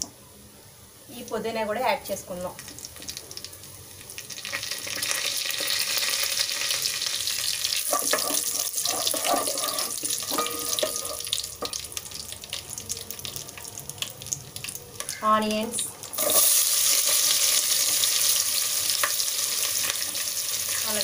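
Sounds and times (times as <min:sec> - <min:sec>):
leaves sizzling in hot oil: 0:01.1 - 0:21.0
wooden spatula stirring pot: 0:07.9 - 0:11.8.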